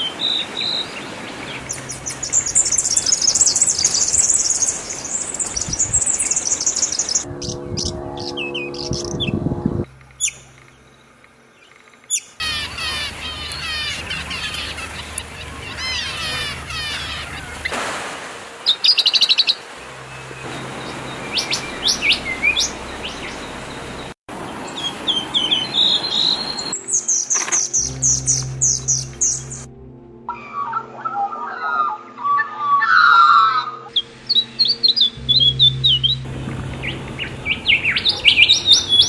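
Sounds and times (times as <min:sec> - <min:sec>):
bird trill: 0:00.0 - 0:17.8, 0:18.7 - 0:24.1, 0:24.7 - 0:29.7, 0:30.3 - 0:39.0
small birds chirping: 0:00.0 - 0:17.8, 0:30.4 - 0:39.0.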